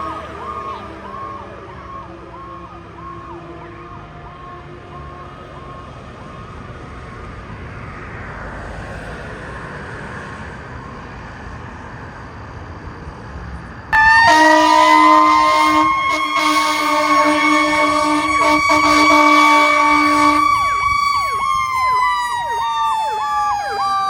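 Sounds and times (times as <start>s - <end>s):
siren wailing: 0.0s - 6.4s, 14.0s - 24.0s
passing vehicle road noise: 0.0s - 24.0s
fire truck air horn: 14.0s - 24.0s.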